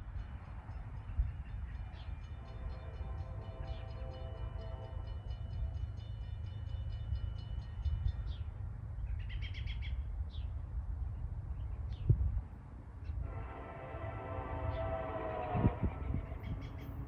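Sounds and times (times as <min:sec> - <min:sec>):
songbirds chirping: 0:00.2 - 0:12.2.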